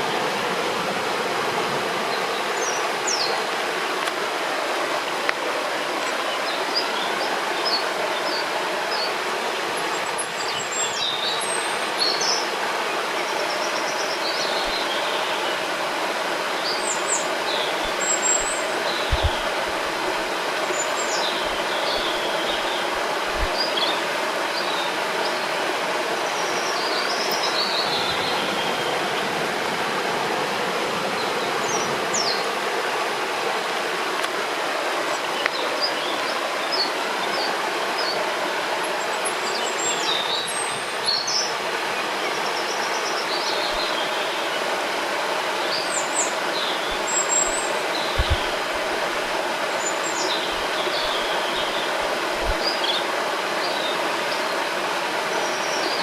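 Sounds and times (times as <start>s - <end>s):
river water rushing: 0.0s - 56.0s
songbirds chirping and whistling: 16.5s - 24.0s, 45.6s - 54.4s
faint low thuds: 19.1s - 20.1s, 48.1s - 49.1s.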